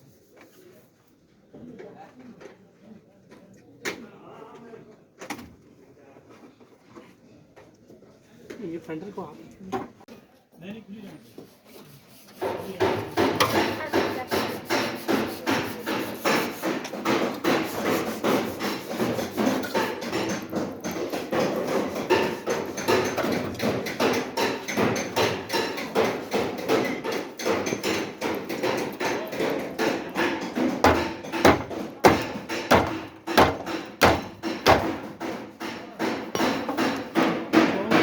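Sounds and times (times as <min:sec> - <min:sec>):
hammer blows on sheet metal: 0:12.4 - 0:38.0.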